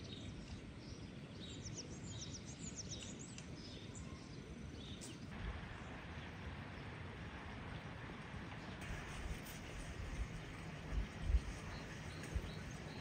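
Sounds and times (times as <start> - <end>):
small birds chirping: 0.0 - 5.3, 8.6 - 13.0
low outdoor rumble: 0.0 - 13.0.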